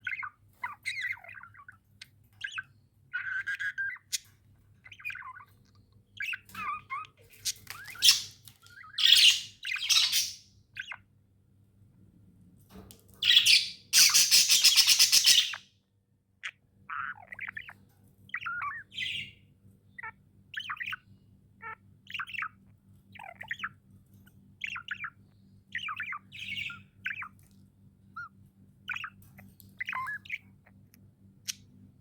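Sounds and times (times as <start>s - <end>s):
budgerigars chirping: 0.0s - 5.6s, 6.2s - 11.0s, 13.2s - 15.6s, 16.9s - 19.4s, 20.0s - 21.0s, 21.6s - 23.8s, 24.6s - 27.4s, 28.2s - 30.8s.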